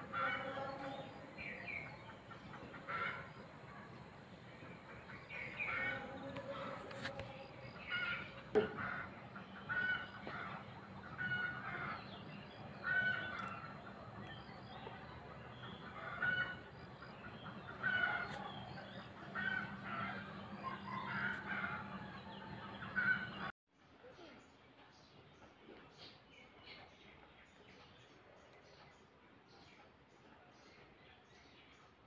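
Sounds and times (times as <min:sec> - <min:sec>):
birds calling: 0:00.0 - 0:23.5.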